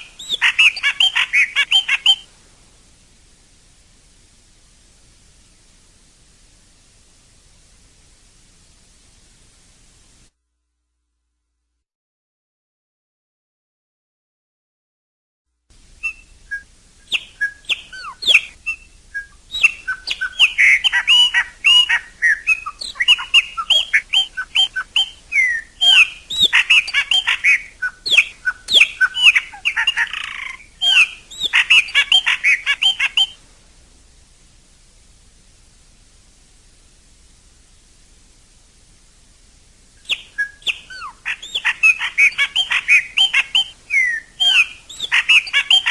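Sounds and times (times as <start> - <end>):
blackbird singing whistles: 0.0 - 2.3, 16.0 - 33.4, 40.0 - 45.9
faint hiss: 0.0 - 10.6, 15.6 - 45.9.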